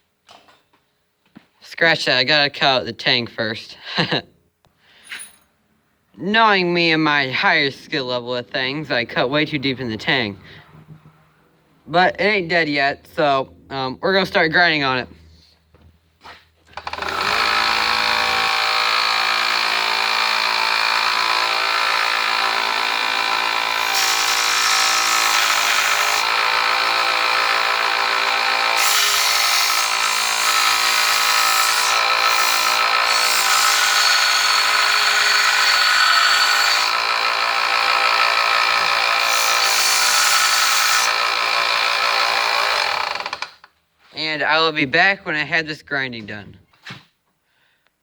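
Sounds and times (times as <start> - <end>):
angle grinder whine: 16.8 - 43.7.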